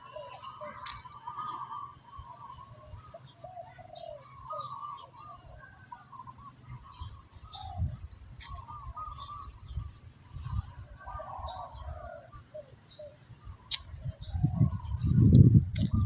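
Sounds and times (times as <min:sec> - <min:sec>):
birds chirping and calling: 0:00.0 - 0:16.0
sharp clicks: 0:13.7 - 0:14.0.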